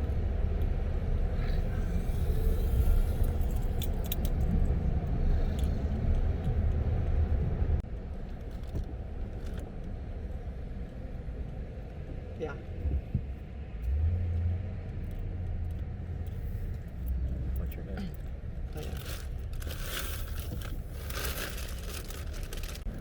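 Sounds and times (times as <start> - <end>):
car road and engine rumble: 0.0 - 23.0.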